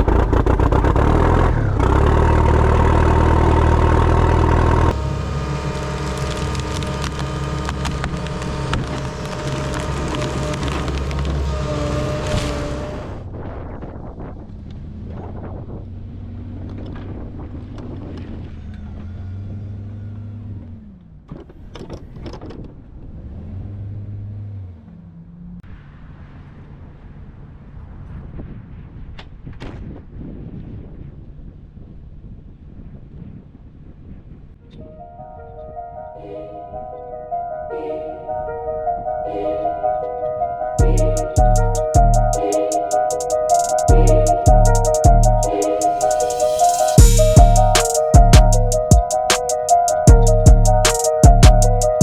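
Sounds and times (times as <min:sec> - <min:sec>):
truck engine running loudly: 0:00.0 - 0:13.2, 0:43.2 - 0:52.0
sharp cracks and crunches: 0:04.9 - 0:13.1.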